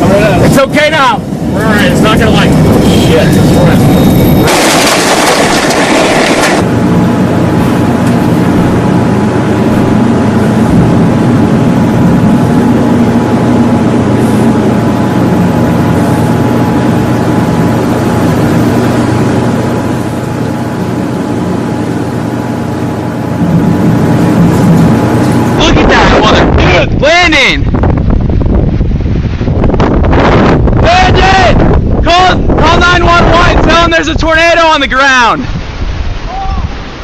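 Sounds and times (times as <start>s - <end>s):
car engine drone: 0.0s - 26.6s
wind and road noise: 0.0s - 37.0s.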